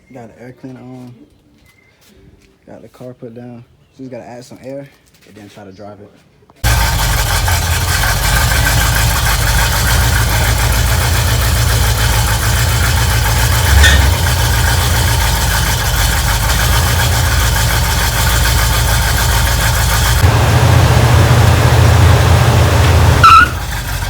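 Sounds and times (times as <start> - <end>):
car engine idling: 6.6 - 24.0
engine revving blip: 13.6 - 14.5, 20.2 - 24.0.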